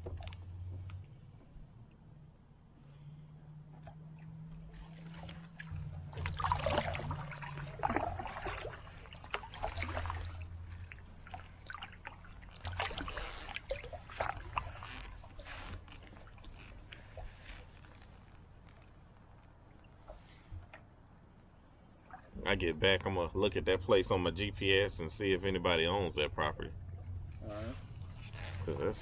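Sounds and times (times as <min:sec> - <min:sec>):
low steady rumble: 0:00.0 - 0:29.0
paddle splashing in water: 0:03.0 - 0:21.0.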